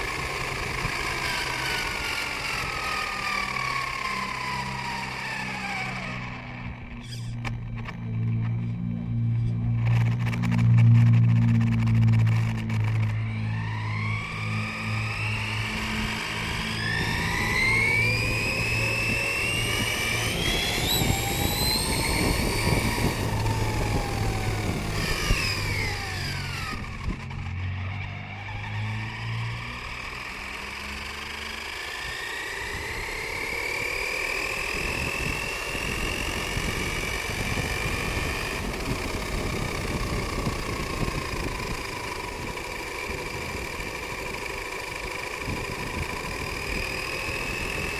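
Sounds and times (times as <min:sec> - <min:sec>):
rc car motor whining: 0:00.0 - 0:47.9
rattle and crunch on rough ground: 0:05.1 - 0:13.6, 0:29.9 - 0:47.9.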